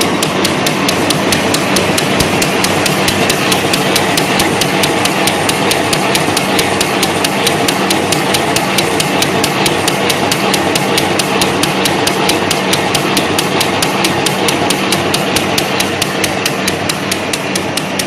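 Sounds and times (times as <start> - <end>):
low machine hum: 0.0 - 18.0
paper towel machine clacking: 0.0 - 18.0.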